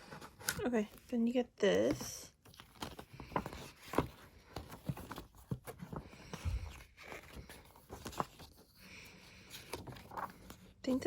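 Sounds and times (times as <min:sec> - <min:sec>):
paper and cardboard rustling: 0:00.0 - 0:11.0.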